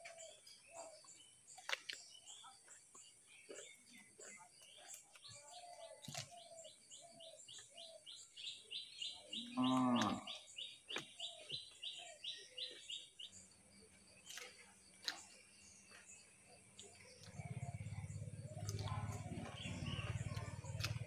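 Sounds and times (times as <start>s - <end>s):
crunching cucumber: 3.5s - 6.6s, 14.2s - 16.0s, 16.7s - 21.0s
low moo-like call: 9.4s - 10.4s.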